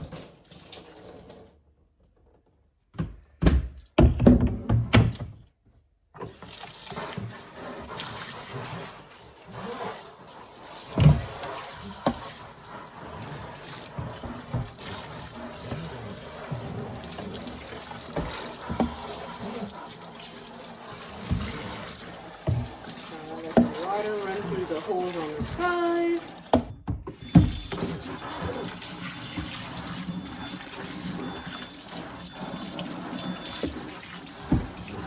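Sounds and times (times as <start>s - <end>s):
water running and splashing: 6.3s - 26.7s, 27.3s - 35.0s.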